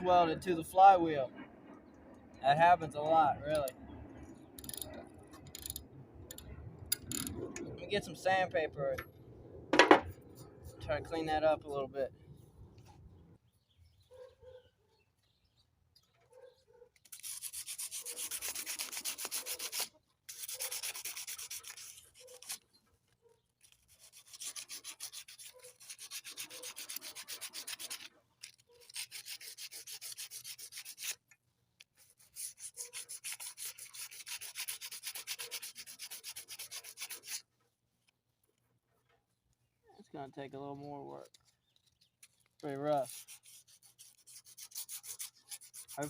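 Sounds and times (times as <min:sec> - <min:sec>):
sandpaper scrubbing metal: 0:17.0 - 0:22.6, 0:23.6 - 0:31.3, 0:31.9 - 0:37.5, 0:42.6 - 0:46.0.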